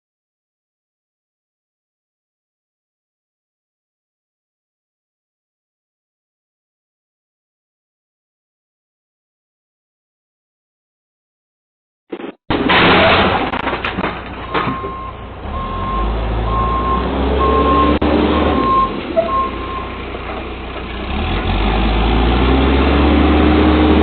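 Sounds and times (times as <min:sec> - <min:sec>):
diesel engine running: 0:14.1 - 0:24.0
reversing alarm beeping: 0:14.5 - 0:20.0.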